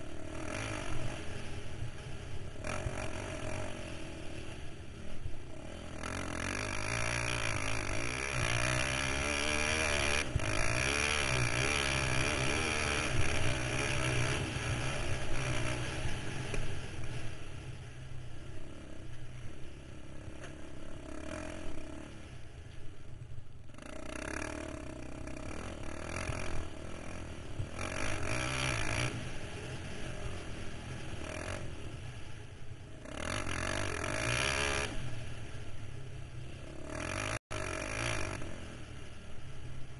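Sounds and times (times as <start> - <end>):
quad engine revving: 0.0 - 1.5, 2.4 - 17.2, 20.2 - 22.2, 23.7 - 32.0, 32.9 - 35.0, 36.6 - 38.8.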